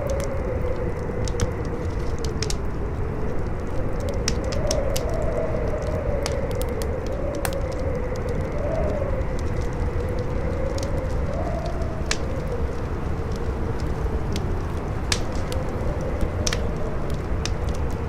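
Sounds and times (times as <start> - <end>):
campfire crackling and popping: 0.0 - 18.0
strong howling wind: 0.0 - 18.0.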